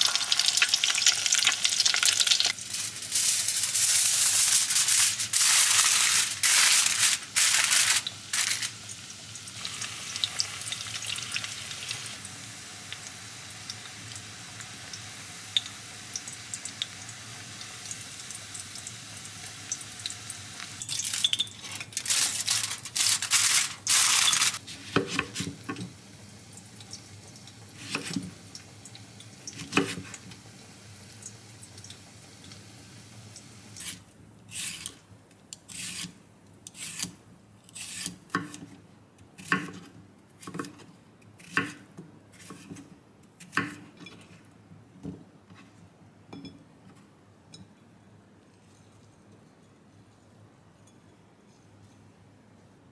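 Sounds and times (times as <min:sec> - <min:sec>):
food deep-frying in oil: 0:00.0 - 0:34.0
aluminium foil crinkling: 0:00.1 - 0:08.8, 0:20.8 - 0:24.6
cucumber being peeled: 0:35.6 - 0:38.7.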